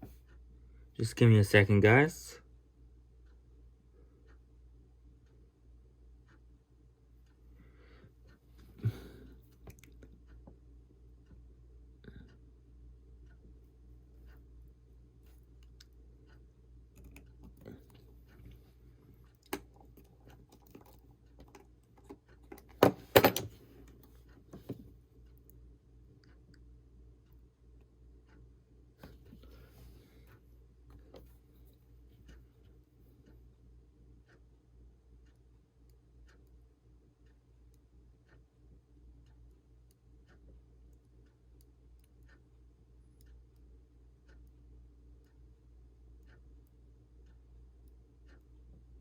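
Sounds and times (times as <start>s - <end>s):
faint clock ticking: 0.0s - 49.0s
low steady hum: 0.0s - 49.0s.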